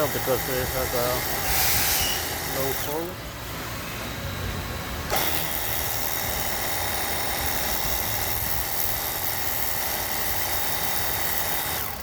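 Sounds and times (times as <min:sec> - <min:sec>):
water jet hissing: 0:00.0 - 0:03.0
pressure washer pump humming: 0:00.0 - 0:03.6, 0:05.0 - 0:12.0.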